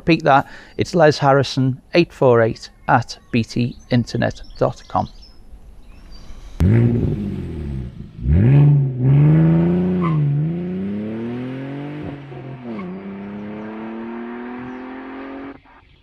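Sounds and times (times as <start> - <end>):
car engine accelerating: 6.6 - 15.8.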